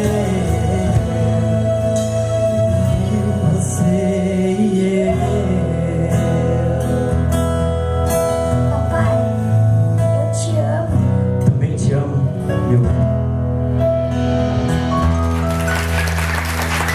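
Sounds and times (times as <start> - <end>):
wordless singing: 0.0 - 7.3
plucked acoustic guitar: 0.0 - 15.5
live band playing gospel: 0.0 - 16.9.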